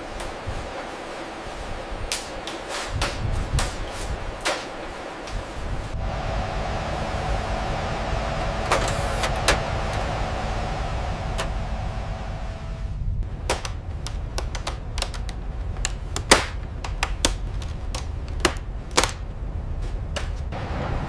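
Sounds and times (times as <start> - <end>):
steady hum: 4.2 - 19.8
low rumble: 5.8 - 15.8
sharp clicks and knocks: 13.3 - 19.2.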